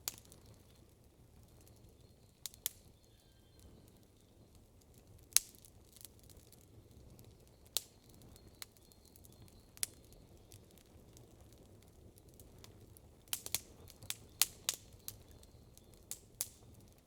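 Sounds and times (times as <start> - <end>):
sharp pops of fire: 0.0 - 0.5, 12.3 - 16.7
campfire crackling: 0.0 - 17.0
low hiss of burning fire: 0.0 - 17.0.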